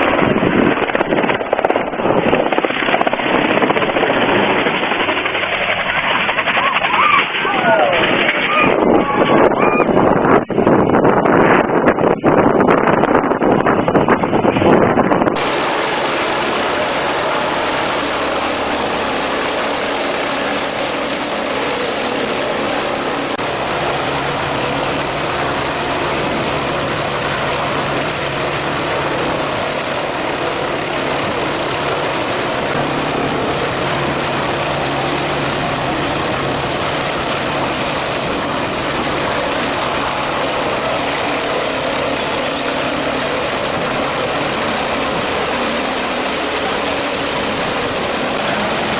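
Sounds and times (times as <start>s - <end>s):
loud engine running: 15.4s - 48.9s.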